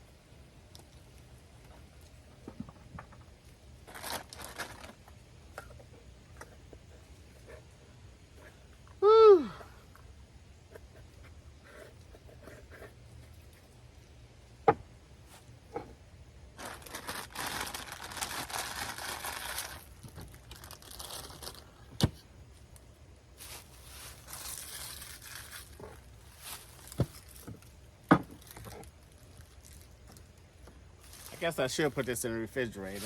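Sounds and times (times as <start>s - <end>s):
packaging crinkling and rustling: 3.8s - 5.8s, 16.6s - 22.8s, 23.4s - 33.0s.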